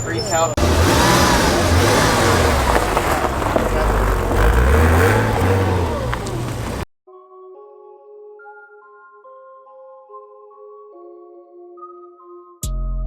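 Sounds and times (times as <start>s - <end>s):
car engine rumbling: 0.0s - 6.9s.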